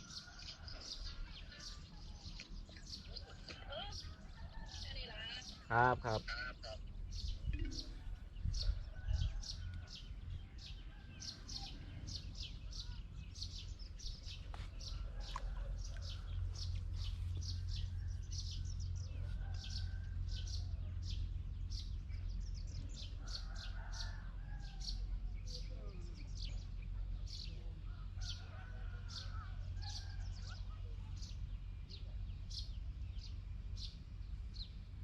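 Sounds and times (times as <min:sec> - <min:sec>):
small birds chirping: 0:00.0 - 0:35.0
steady low rumble: 0:06.8 - 0:23.3.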